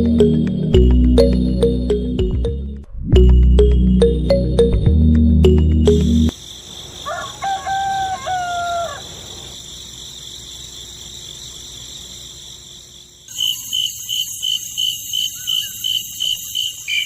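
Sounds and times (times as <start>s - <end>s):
rooster crowing: 7.0s - 9.4s.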